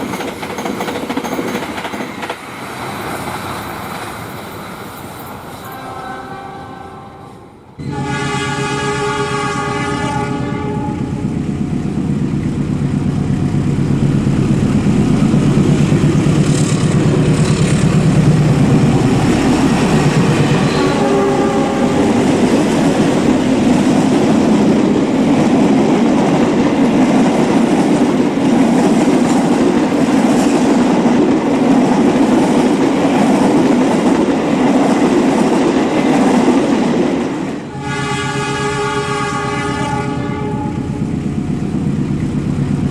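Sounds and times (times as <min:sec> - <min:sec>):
train passing with loud rumble: 0:00.0 - 0:42.9
diesel locomotive horn: 0:05.6 - 0:11.4, 0:18.6 - 0:23.3, 0:37.6 - 0:41.2.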